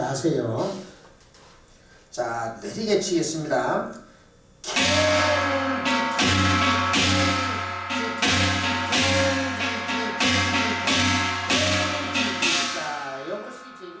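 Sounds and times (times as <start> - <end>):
two-headed drum struck with sticks: 4.7 - 14.0.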